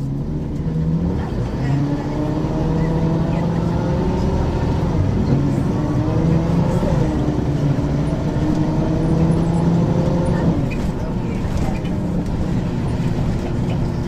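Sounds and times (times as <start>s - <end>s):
bus diesel engine under load: 0.0s - 14.0s.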